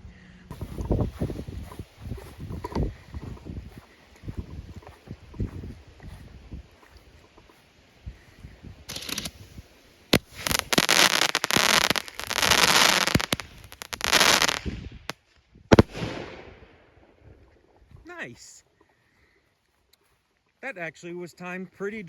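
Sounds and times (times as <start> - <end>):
fireworks crackling and hissing: 8.8 - 16.5.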